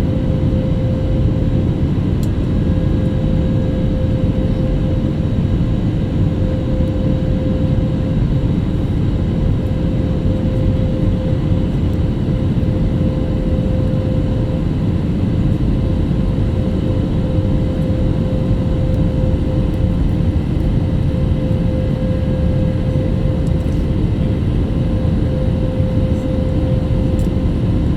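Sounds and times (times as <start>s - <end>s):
jet engines and airflow rumble: 0.0s - 27.9s.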